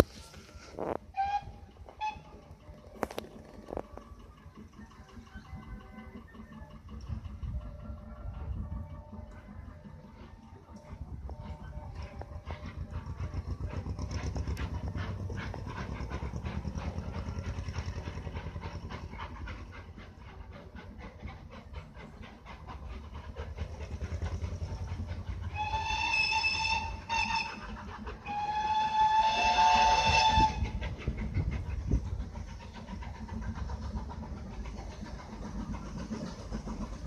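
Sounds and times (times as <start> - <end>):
steam locomotive chuffing: 0.0 - 37.0
steam whistle: 0.2 - 2.4, 25.5 - 30.7.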